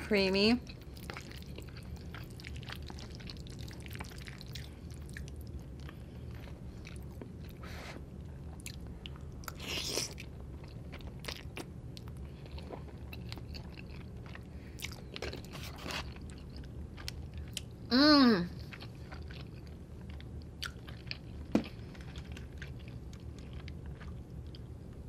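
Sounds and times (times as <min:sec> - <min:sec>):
close chewing: 0:00.7 - 0:07.6, 0:08.5 - 0:17.7.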